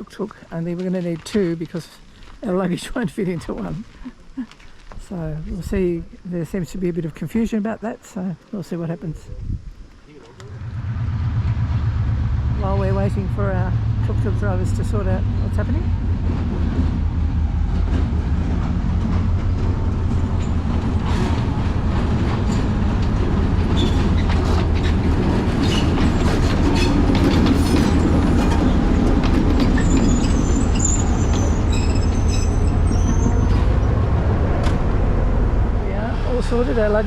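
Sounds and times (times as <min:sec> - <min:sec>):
train rumbling on rails: 0:10.3 - 0:37.0
wheel squeal: 0:23.6 - 0:34.8.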